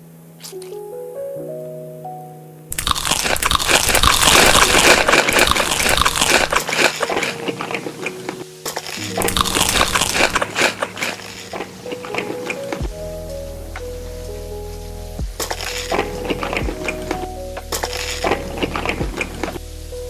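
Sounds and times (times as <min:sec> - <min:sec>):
soft background music: 0:00.0 - 0:20.0
crunchy biting and chewing: 0:02.7 - 0:12.8, 0:15.9 - 0:17.3, 0:17.9 - 0:19.6.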